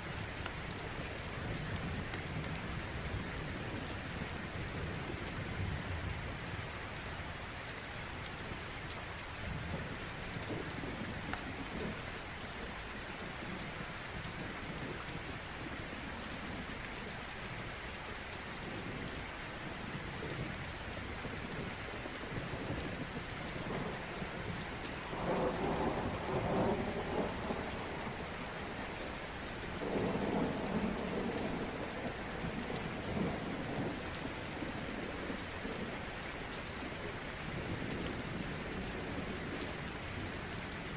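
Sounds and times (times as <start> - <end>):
steady rain falling: 0.0 - 40.9
thunder rumbling: 25.0 - 35.1.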